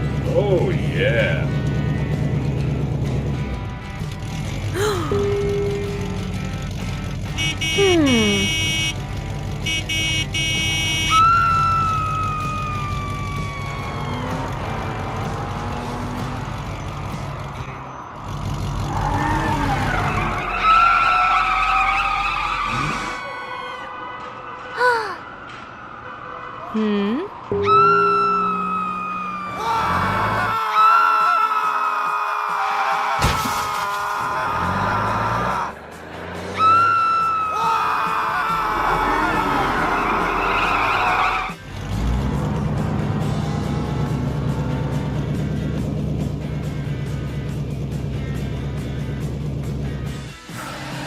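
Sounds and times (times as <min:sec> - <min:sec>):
cartoon car engine running: 0:00.0 - 0:20.7, 0:39.8 - 0:50.5
tyres skidding: 0:00.0 - 0:24.7, 0:27.5 - 0:31.2, 0:32.0 - 0:51.0
cartoon background music: 0:04.9 - 0:09.0, 0:26.8 - 0:31.3
tyres screeching: 0:18.4 - 0:23.7, 0:27.5 - 0:41.6.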